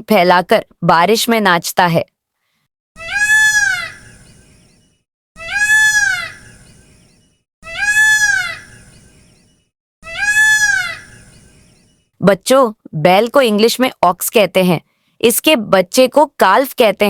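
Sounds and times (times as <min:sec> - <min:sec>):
peacock wailing call: 0:03.0 - 0:04.4, 0:05.4 - 0:09.3, 0:10.0 - 0:12.0.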